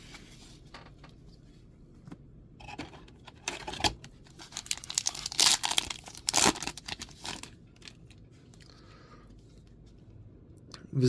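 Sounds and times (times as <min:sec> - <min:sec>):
plastic wrapper tearing and crinkling: 0:04.3 - 0:08.1.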